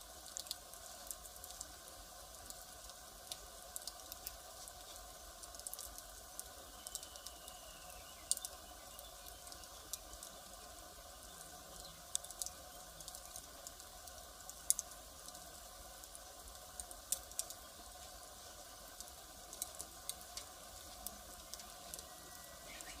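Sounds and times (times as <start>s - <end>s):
faint hiss of flames: 0.0s - 23.0s
burning wood snapping and popping: 0.3s - 1.7s, 2.4s - 7.6s, 8.2s - 10.4s, 11.8s - 15.4s, 16.0s - 18.2s, 18.9s - 22.1s.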